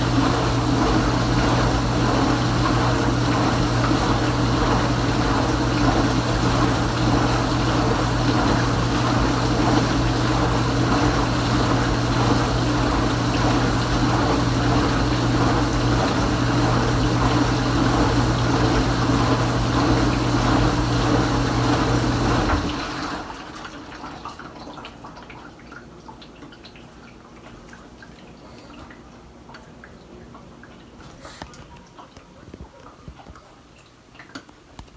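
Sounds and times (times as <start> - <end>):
dishwasher pump running: 0.0 - 34.9
water dripping and trickling: 23.8 - 34.5.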